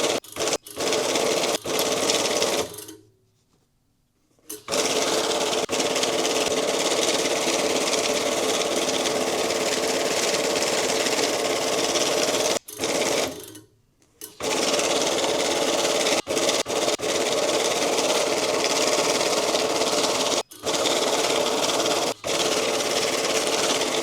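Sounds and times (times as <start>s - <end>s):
banknote counting machine running: 0.0s - 2.9s, 4.7s - 13.5s, 14.4s - 24.0s.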